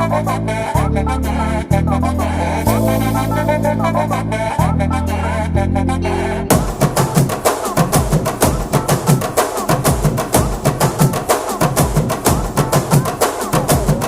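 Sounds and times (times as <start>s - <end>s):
music with fast drum beats: 6.5s - 14.0s.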